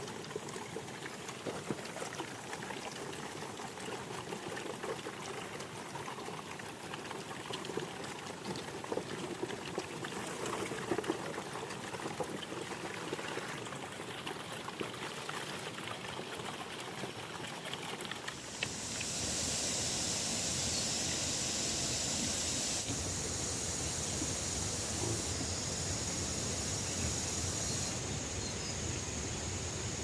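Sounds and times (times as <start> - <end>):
running water splashing: 0.0 - 28.0.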